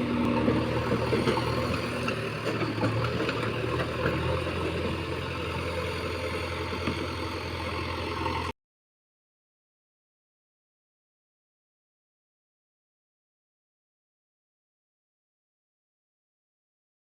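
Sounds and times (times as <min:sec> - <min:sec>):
heavy diesel engine running: 0:00.0 - 0:08.5.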